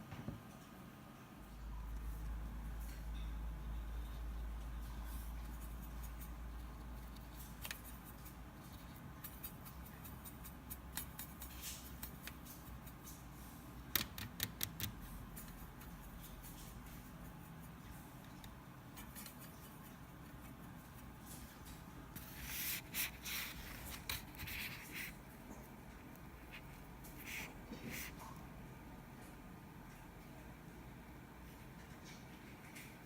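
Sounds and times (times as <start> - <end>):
brush rubbing on paper: 4.0 - 13.6, 22.2 - 25.3, 26.4 - 28.3.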